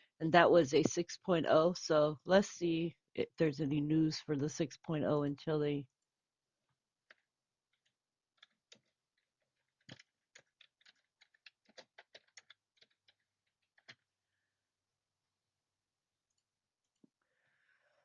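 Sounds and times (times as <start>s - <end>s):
faint keyboard typing: 7.0s - 14.1s.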